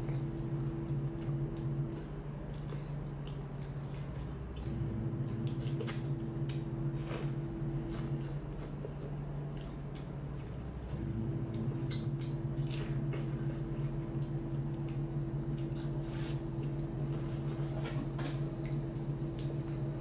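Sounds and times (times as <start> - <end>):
chewing meat: 0.0 - 20.0
steady low hum: 0.0 - 20.0.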